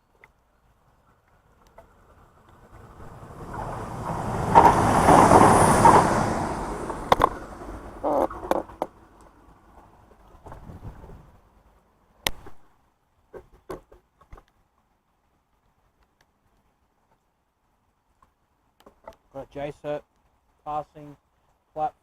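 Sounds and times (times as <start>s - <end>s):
vehicle passing by: 2.0s - 9.1s
sharp knocks: 3.4s - 8.9s.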